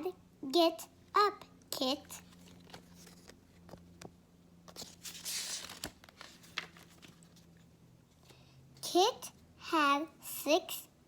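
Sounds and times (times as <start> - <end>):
paper page turning: 2.2 - 3.8, 4.7 - 7.6.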